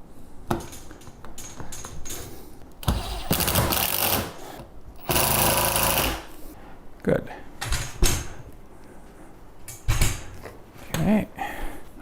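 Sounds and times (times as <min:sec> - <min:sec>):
clicks and knocks of handled parts: 0:00.5 - 0:02.4
cordless power driver running: 0:02.8 - 0:04.3, 0:05.0 - 0:06.3.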